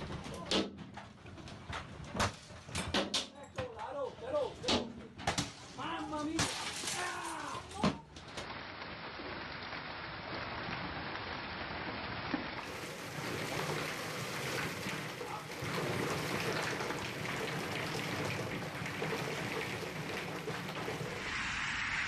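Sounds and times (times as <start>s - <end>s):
hailstones hitting: 5.8s - 21.3s
hail and heavy rain hissing: 5.8s - 21.6s.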